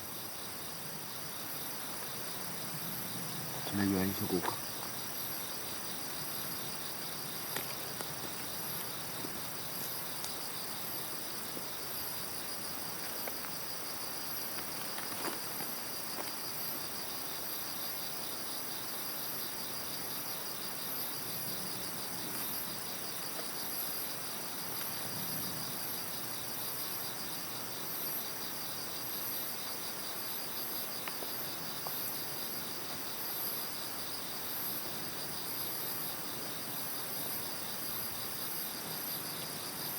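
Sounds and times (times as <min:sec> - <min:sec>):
high insect chirps: 0:00.0 - 0:39.9
insects trilling: 0:00.0 - 0:39.9.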